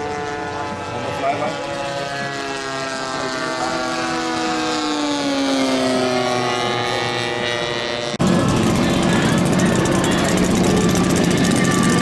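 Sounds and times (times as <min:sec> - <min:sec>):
model airplane engine flying past: 0:00.0 - 0:12.0
close engine running steadily: 0:08.0 - 0:12.0.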